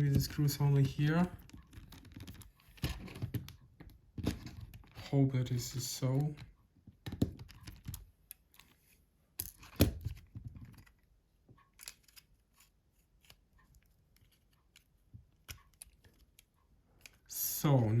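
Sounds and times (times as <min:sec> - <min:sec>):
plastic phone parts clicking: 0:00.9 - 0:05.1, 0:07.0 - 0:08.7, 0:09.4 - 0:17.3.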